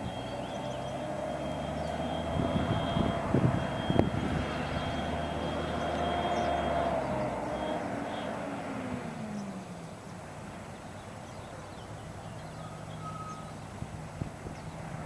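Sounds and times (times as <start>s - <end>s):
hydraulic whine: 0.0s - 9.5s
garbage truck diesel engine droning: 0.0s - 14.3s.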